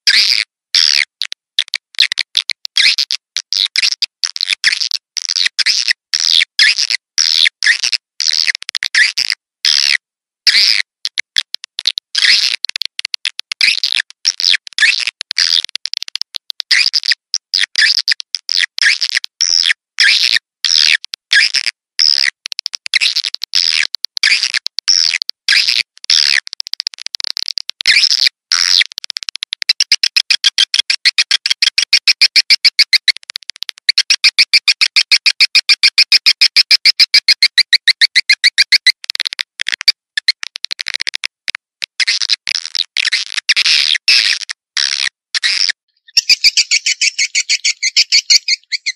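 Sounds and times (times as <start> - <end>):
fast rattling trill: 46.1 - 48.9
swiftlet twittering chirps: 46.1 - 48.9.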